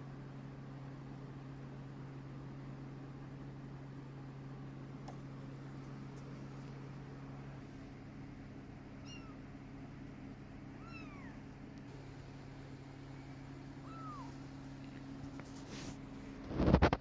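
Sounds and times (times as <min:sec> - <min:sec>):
steady low hum: 0:00.0 - 0:17.0
kitten meowing: 0:09.0 - 0:09.5, 0:10.8 - 0:11.5, 0:13.8 - 0:14.5.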